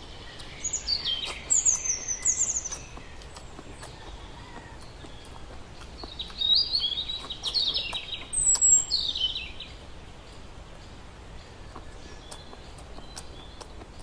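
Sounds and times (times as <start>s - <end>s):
songbird chirping and trilling: 0.0s - 14.0s
faint chewing clicks: 0.2s - 14.0s.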